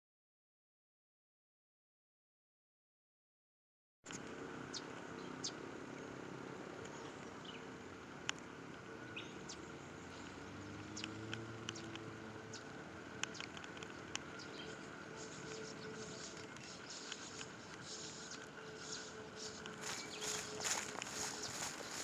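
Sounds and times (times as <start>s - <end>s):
faint distant hum: 4.1s - 22.0s
high chirps and ticks: 9.5s - 22.0s.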